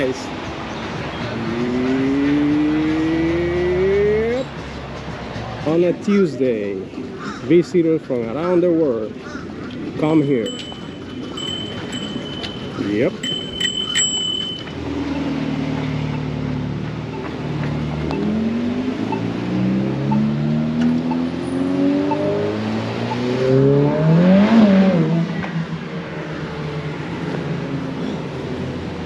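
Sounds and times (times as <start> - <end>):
car engine accelerating: 14.8 - 28.9.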